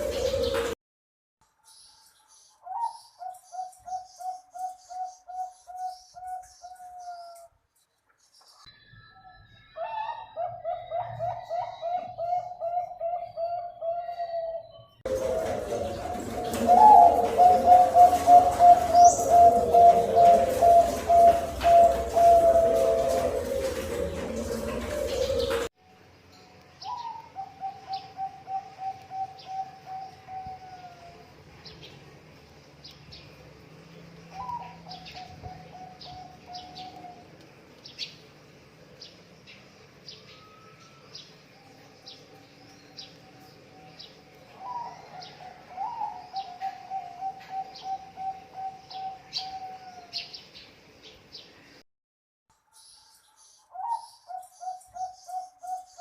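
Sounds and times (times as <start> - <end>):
dove cooing: 0.0 - 0.8, 9.8 - 25.7, 26.9 - 31.2, 34.3 - 37.4, 44.5 - 50.2
small birds chirping: 26.6 - 51.8.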